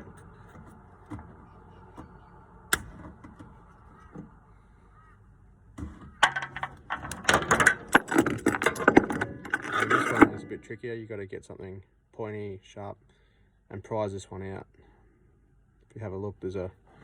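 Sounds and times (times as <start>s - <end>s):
clicks and rattles of handling: 5.8s - 10.7s.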